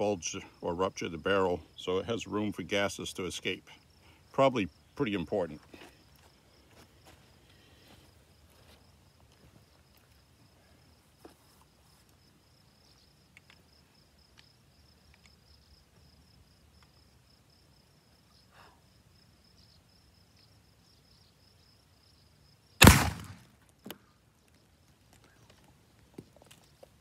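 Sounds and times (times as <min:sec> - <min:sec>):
high-pitched insect trill: 0:08.0 - 0:22.8.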